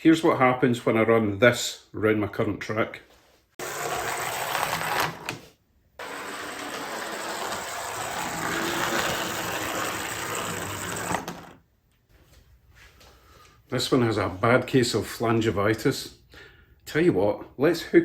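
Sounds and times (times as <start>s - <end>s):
small electric motor whirring: 6.0s - 11.6s.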